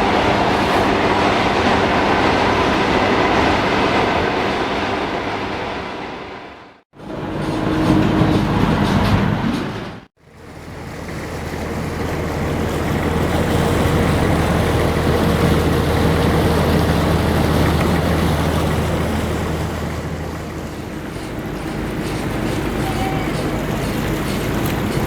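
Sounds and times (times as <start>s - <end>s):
boat diesel engine humming: 0.0s - 4.6s, 6.9s - 25.0s
wind and water hiss: 10.2s - 25.0s.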